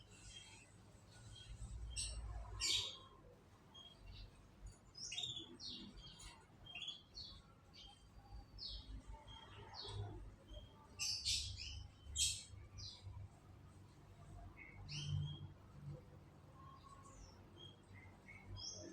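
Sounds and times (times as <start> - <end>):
canaries chirping: 0.1 - 13.3, 14.6 - 15.7.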